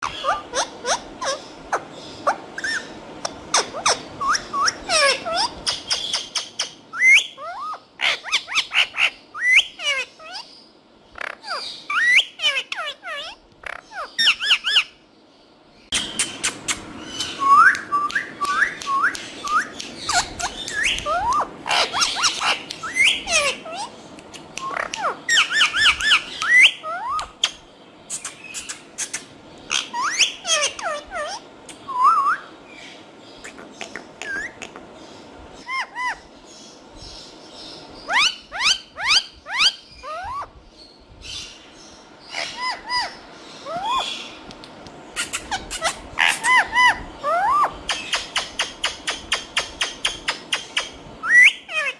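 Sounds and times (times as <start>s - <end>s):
parrots chirping and squawking: 0.0s - 15.0s, 15.9s - 40.5s, 41.2s - 51.9s.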